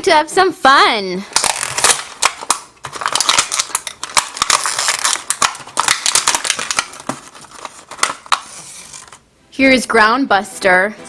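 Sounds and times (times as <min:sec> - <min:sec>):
plastic toy packaging clicks and crinkling: 0:01.3 - 0:09.2.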